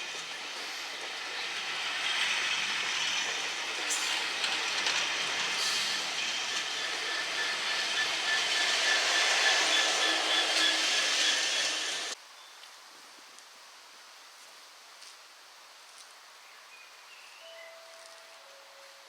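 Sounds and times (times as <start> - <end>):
train moving on rails: 0.0 - 12.2
wheel squeal: 0.0 - 12.2.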